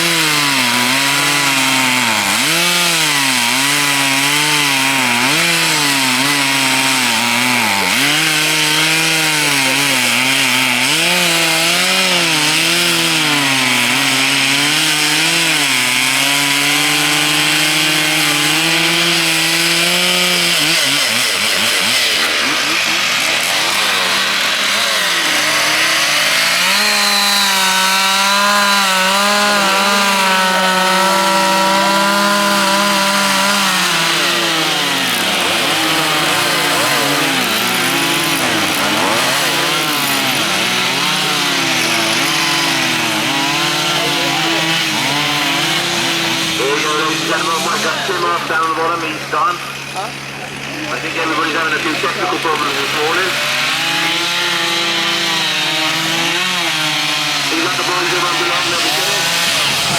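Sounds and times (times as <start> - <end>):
chainsaws cutting wood: 0.0 - 59.9.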